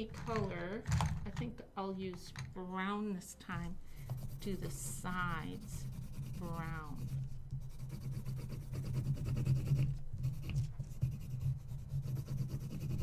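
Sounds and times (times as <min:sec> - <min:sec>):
steady low hum: 0:00.0 - 0:12.8
pencil scribbling on paper: 0:04.0 - 0:13.0.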